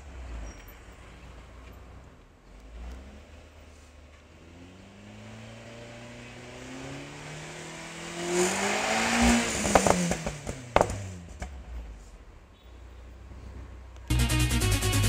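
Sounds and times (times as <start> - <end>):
car engine revving: 0.0 - 12.1
exhaust pops: 9.2 - 12.1.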